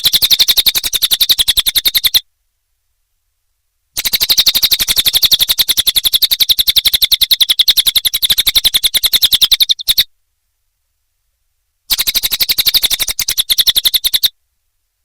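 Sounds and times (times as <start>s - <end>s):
bird singing a rapid trill: 0.0s - 2.2s, 4.0s - 10.1s, 11.9s - 14.4s.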